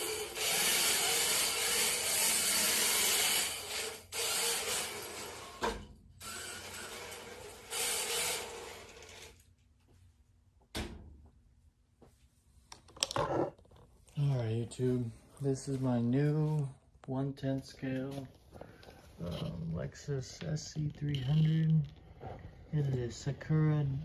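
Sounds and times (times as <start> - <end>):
thump: 10.7 - 11.2.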